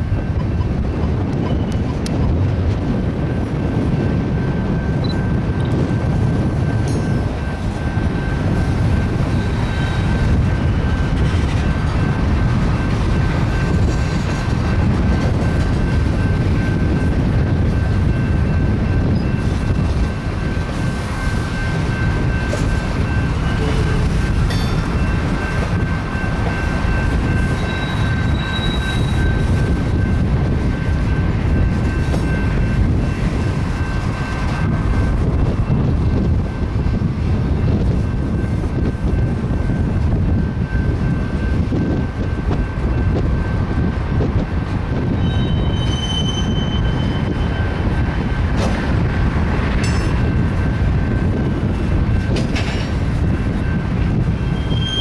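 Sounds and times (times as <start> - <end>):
train wheels rumbling on rail: 0.0 - 55.0
high-pitched ring: 21.2 - 30.2, 45.2 - 47.8.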